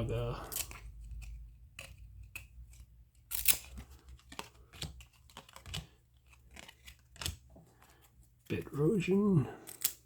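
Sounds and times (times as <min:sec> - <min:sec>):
cards flipped by hand: 0:00.5 - 0:08.4.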